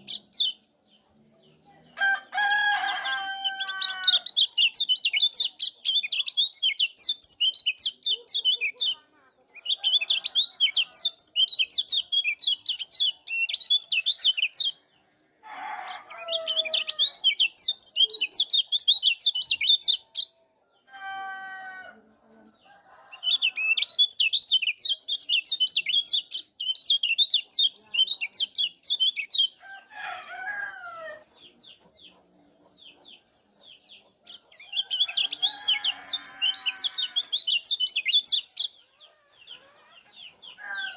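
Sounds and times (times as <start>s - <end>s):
lower-pitched bird calls: 15.8s - 20.2s.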